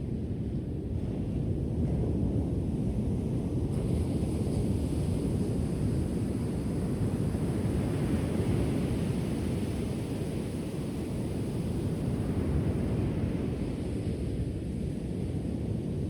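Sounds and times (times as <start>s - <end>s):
ocean waves rolling onto shore: 3.8s - 16.0s.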